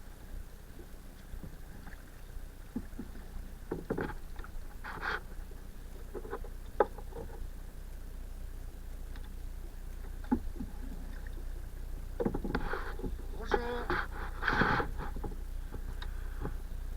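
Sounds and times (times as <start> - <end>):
paddle splashing in water: 10.2 - 16.6
paddle knocking against boat: 12.1 - 16.6.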